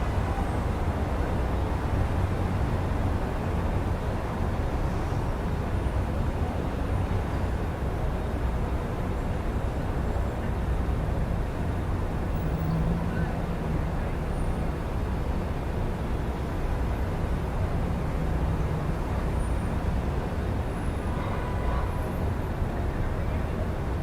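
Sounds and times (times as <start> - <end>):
city road traffic rumble: 0.0 - 24.0.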